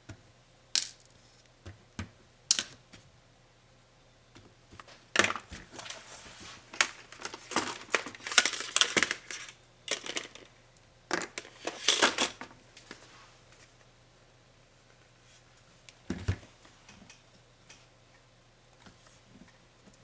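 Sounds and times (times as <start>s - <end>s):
laptop parts pried apart: 6.7s - 10.5s.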